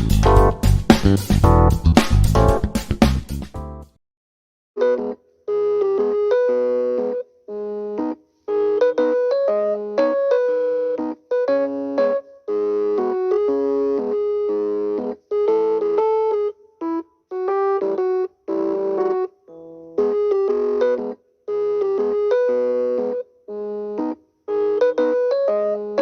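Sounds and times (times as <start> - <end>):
bright keyboard tune: 0.0 - 3.0, 4.8 - 26.0.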